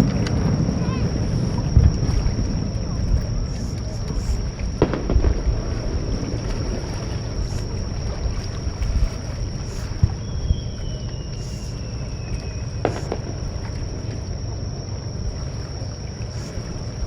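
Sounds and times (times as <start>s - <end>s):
water at shoreline: 0.0s - 17.0s
wind rumbling on microphone: 0.0s - 17.0s.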